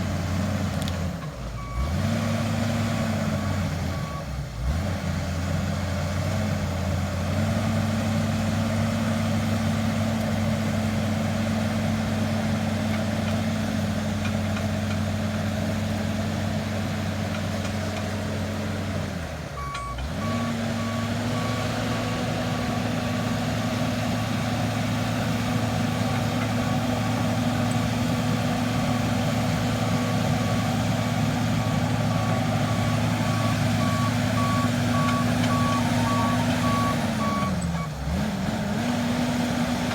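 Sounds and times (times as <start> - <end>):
bulldozer diesel engine running: 0.0 - 39.9
reversing alarm beeping: 19.6 - 22.9, 25.6 - 37.9.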